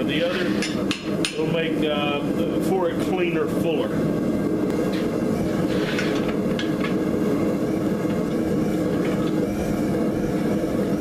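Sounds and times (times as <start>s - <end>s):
shop equipment droning roar: 0.0s - 11.0s.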